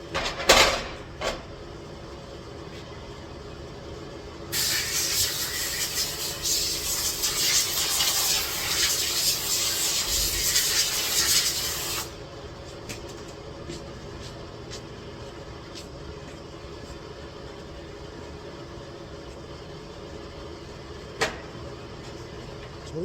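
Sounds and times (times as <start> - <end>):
loud steady hiss: 4.5 - 12.2.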